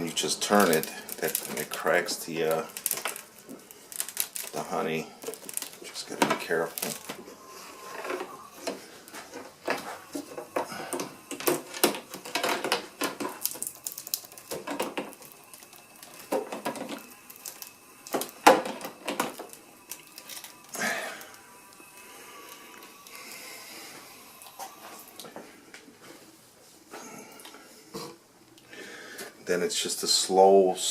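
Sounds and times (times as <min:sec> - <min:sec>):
plastic cells clicking and clattering: 0:00.5 - 0:01.8, 0:02.4 - 0:04.6, 0:09.4 - 0:20.6.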